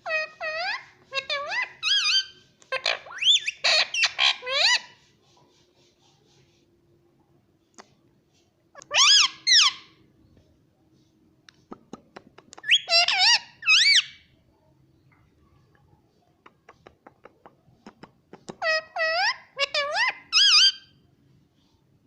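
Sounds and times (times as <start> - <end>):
parrot squeaky calls: 0.0 - 5.0, 8.8 - 10.0, 12.6 - 14.3, 18.6 - 21.0.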